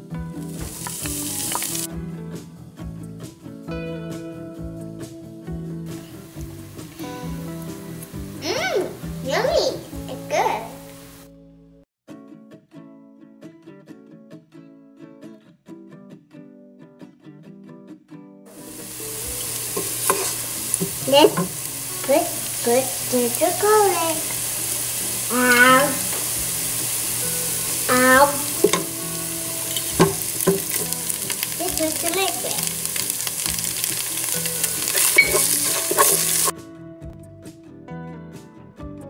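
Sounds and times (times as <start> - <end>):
onion sizzling in hot oil: 0.4 - 1.9, 6.1 - 9.2, 18.5 - 36.5
wooden spatula scraping pan: 19.4 - 22.1, 33.9 - 36.5.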